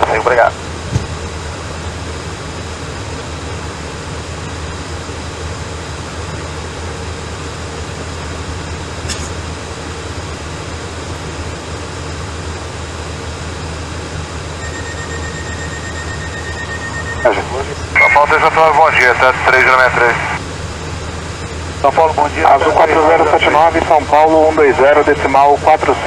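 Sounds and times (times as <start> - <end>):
airplane cabin noise: 0.0 - 26.0
faint steady tone: 14.5 - 18.6.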